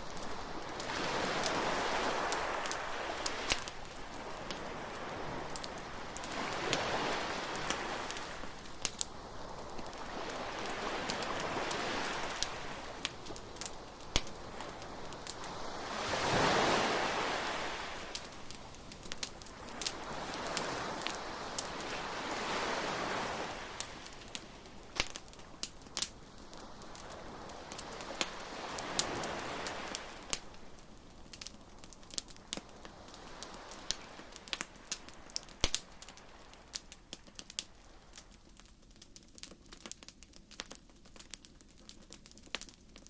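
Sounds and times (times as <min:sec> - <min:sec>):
surf washing in: 0:00.0 - 0:24.9, 0:26.6 - 0:30.3
bonfire crackling and popping: 0:00.0 - 0:43.0.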